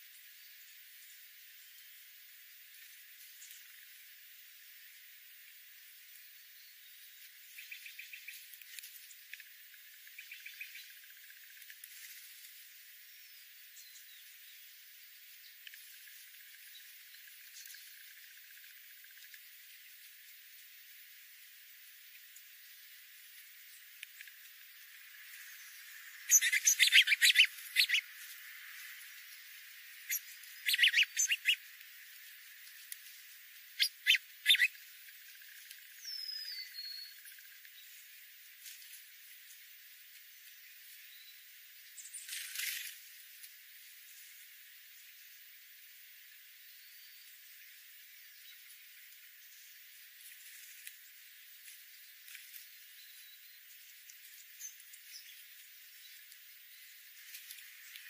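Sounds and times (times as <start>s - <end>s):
steady hiss: 0.0s - 58.0s
bird chirps: 10.1s - 11.0s, 25.4s - 28.2s, 29.2s - 31.7s, 33.7s - 34.8s, 35.9s - 37.9s
falling bird whistle: 26.3s - 28.0s, 30.1s - 31.6s, 33.8s - 34.7s
high repeated chirps: 26.3s - 28.0s, 30.1s - 31.6s, 33.8s - 34.7s.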